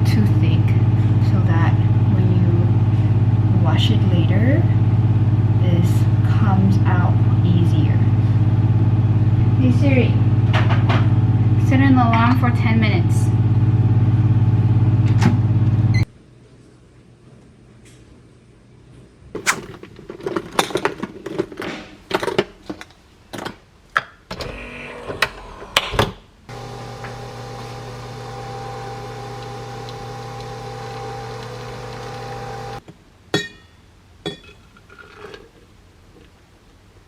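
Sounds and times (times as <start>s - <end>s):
microwave oven humming: 0.0s - 16.1s, 24.3s - 25.8s, 26.5s - 32.8s.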